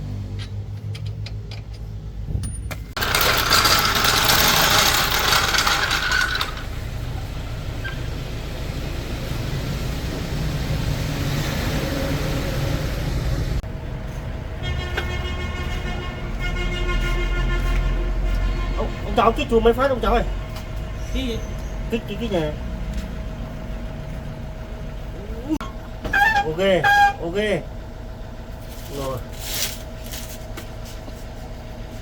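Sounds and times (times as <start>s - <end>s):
truck engine running: 0.0s - 11.2s, 21.6s - 32.0s.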